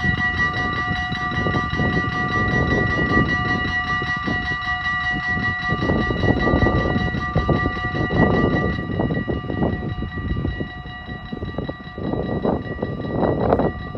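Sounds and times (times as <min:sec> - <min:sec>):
level crossing bell ringing: 0:00.0 - 0:13.9.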